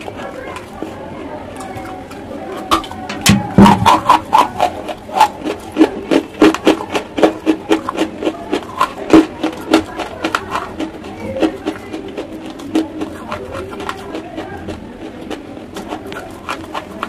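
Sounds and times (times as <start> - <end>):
chewing crunchy chalk: 3.6 - 17.0.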